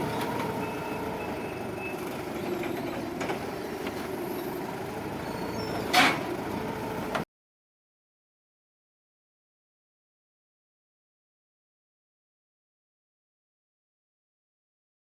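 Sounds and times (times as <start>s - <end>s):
forklift engine running: 0.0s - 7.2s.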